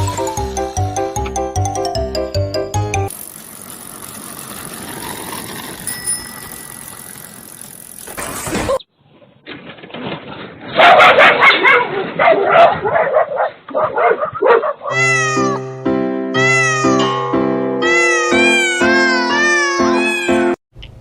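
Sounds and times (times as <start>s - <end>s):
music with held notes: 0.0s - 3.1s, 15.4s - 19.0s.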